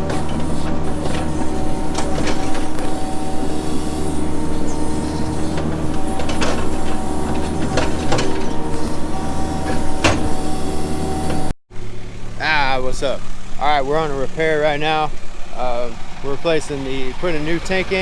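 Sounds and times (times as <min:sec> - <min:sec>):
short clicks and knocks: 0:00.0 - 0:11.5
heavy equipment engine running: 0:00.0 - 0:18.0.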